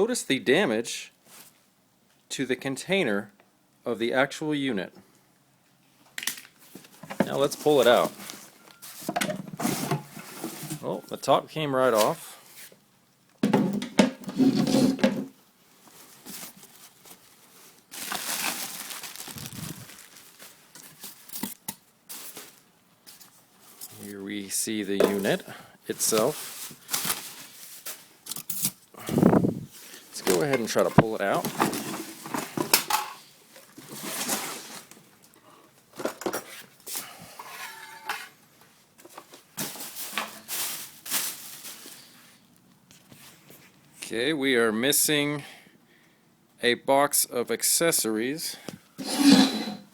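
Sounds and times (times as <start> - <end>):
packaging rustling and crinkling: 6.3 - 10.9, 15.8 - 24.1, 25.1 - 32.9, 33.5 - 35.4, 39.0 - 43.8.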